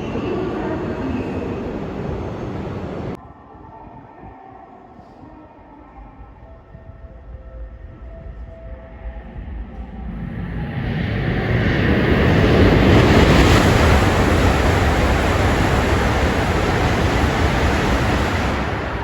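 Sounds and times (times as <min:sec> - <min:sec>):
train passing at speed: 0:00.0 - 0:03.2, 0:09.0 - 0:19.0.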